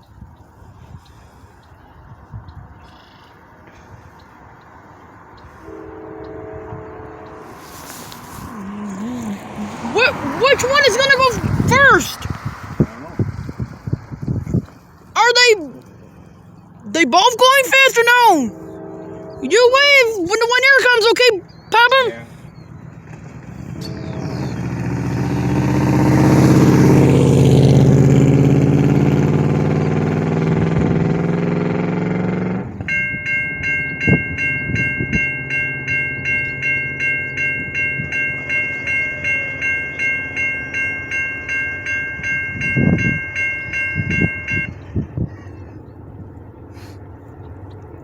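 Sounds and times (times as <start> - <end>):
railroad crossing bell dinging: 4.0 - 12.2, 15.2 - 45.3
locomotive horn blast: 5.5 - 11.9, 17.5 - 22.5, 23.4 - 44.9.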